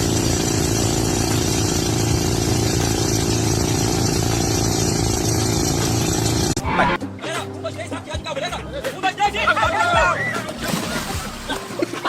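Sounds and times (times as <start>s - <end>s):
vehicle engine idling: 0.0s - 6.6s.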